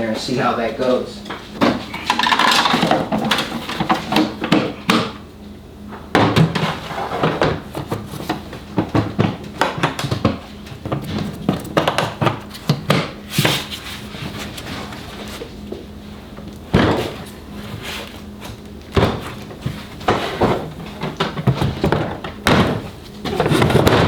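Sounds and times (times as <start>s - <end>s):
knocks bumps and clunks of saw: 18.9s - 24.0s.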